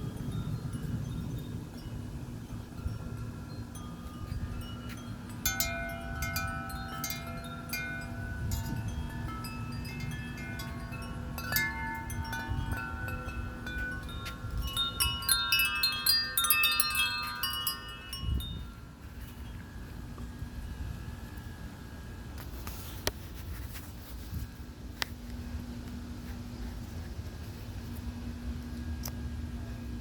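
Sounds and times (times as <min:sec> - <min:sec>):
wind chimes ringing: 0:00.0 - 0:20.0
low wind rumble: 0:00.0 - 0:30.0.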